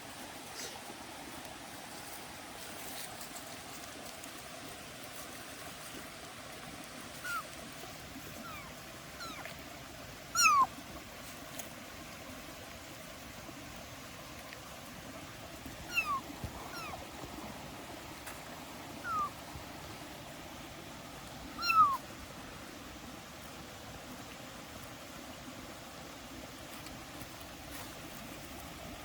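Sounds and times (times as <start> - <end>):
kitten meowing: 7.2 - 7.4, 8.4 - 9.5, 10.4 - 10.7, 15.9 - 17.0, 19.0 - 19.4, 21.6 - 22.0.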